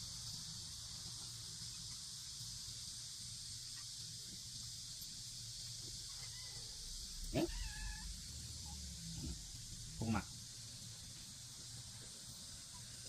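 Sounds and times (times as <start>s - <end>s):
high-pitched hiss: 0.0s - 13.0s
low hum: 6.6s - 13.0s.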